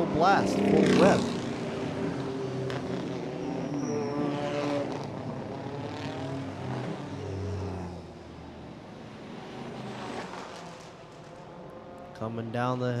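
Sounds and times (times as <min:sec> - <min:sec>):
racing car engines passing: 0:00.0 - 0:13.0.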